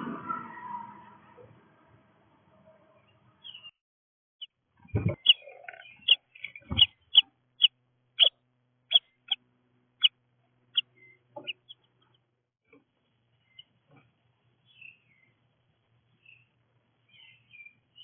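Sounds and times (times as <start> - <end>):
bird sharp high calls: 4.9 - 9.4, 10.0 - 11.9.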